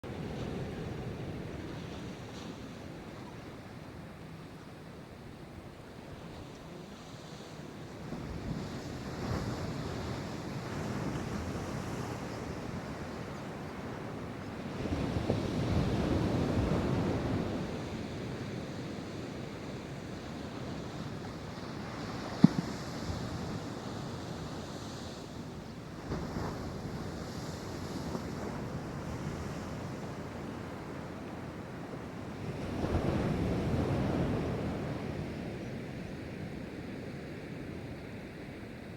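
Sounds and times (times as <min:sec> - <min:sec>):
surf breaking ashore: 0:00.0 - 0:38.9
wind buffeting microphone: 0:07.5 - 0:36.7.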